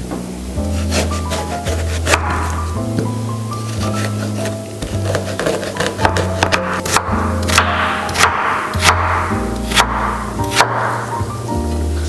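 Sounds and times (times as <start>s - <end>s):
soft background music: 0.0s - 12.0s
knife chopping on wooden board: 0.8s - 2.7s, 3.7s - 11.1s.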